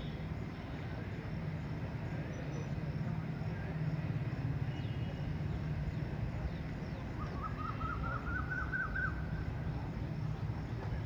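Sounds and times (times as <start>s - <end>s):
low machinery rumble: 0.0s - 11.0s
bird chirping: 4.7s - 9.4s.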